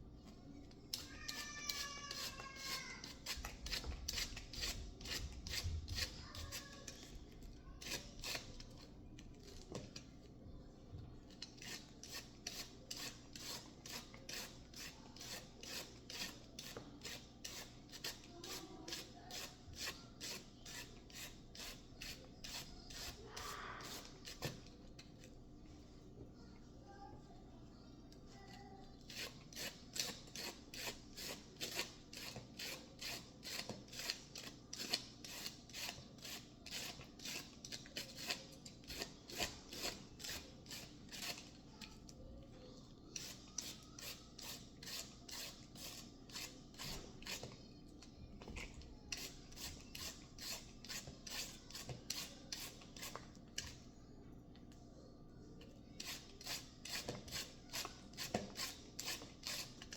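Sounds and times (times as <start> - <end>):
rasping shredding of food: 29.1 - 41.5.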